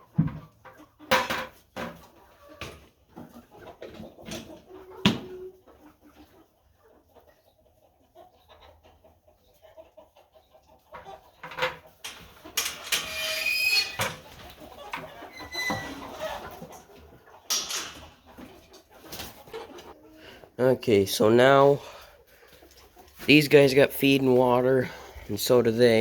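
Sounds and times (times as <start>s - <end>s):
chickens clucking softly: 0.0s - 26.0s.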